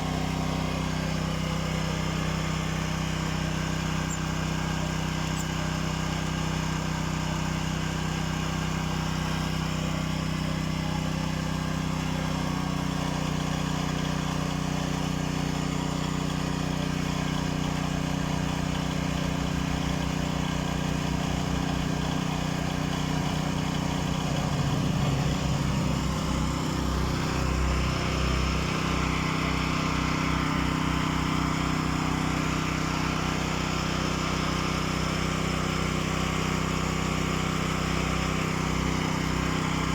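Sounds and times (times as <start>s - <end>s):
generator engine humming: 0.0s - 39.9s.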